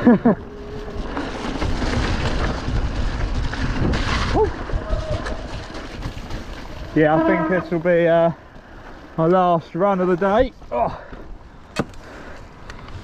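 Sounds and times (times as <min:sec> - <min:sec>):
tyre and wind noise: 0:00.0 - 0:13.0
bike knocks and rattles: 0:01.1 - 0:07.0.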